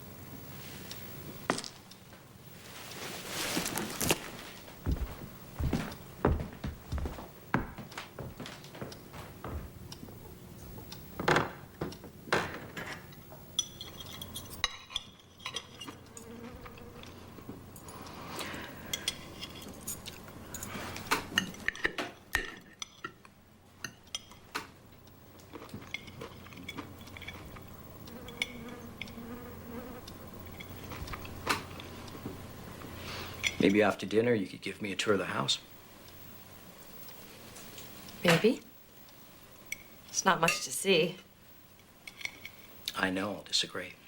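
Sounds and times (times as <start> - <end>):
faint buzzing tone: 15.4 - 19.2, 24.9 - 33.7.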